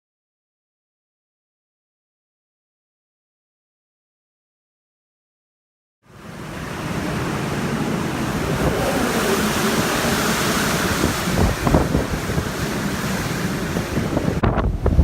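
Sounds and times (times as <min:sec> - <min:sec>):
strong wind gusting: 0:06.2 - 0:15.0
wind buffeting microphone: 0:06.5 - 0:15.0.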